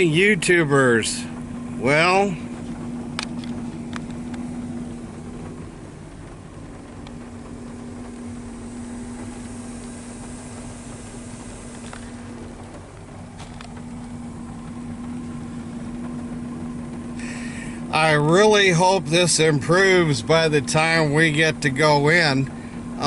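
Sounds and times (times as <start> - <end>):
rain shower hissing: 0.0 - 23.0
vehicle engine idling: 0.0 - 23.0.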